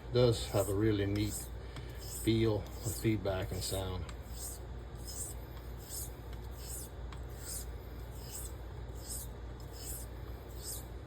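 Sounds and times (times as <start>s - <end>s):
razor scraping on whetstone: 0.3s - 11.0s.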